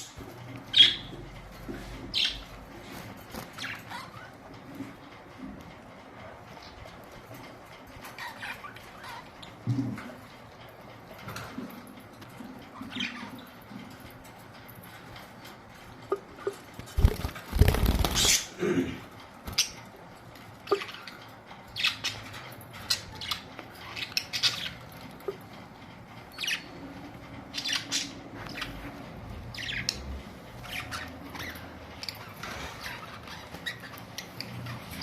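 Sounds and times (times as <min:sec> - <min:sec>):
budgerigars chirping: 0:00.0 - 0:01.2, 0:02.0 - 0:02.6, 0:16.1 - 0:18.5, 0:20.6 - 0:25.4, 0:26.3 - 0:26.8, 0:27.5 - 0:35.0.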